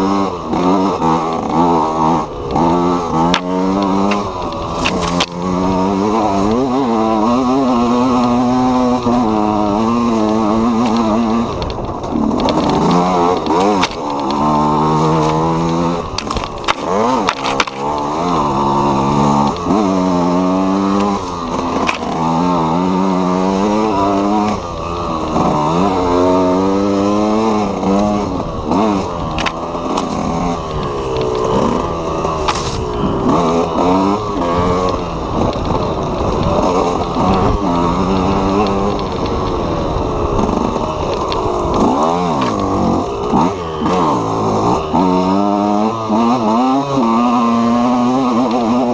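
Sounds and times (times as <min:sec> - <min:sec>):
two-stroke motorcycle engine revving: 0:00.0 - 0:48.9.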